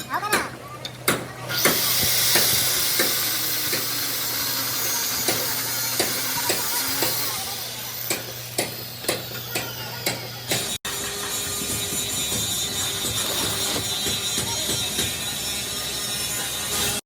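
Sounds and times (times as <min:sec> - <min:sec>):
arc welding crackling hiss: 0:01.6 - 0:08.9.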